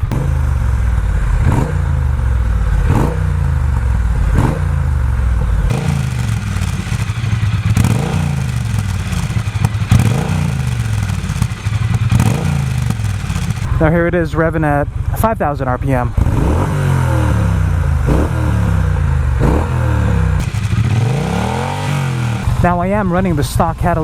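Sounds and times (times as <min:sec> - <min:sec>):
motorcycle engine idling: 0:05.7 - 0:14.8, 0:20.4 - 0:23.6.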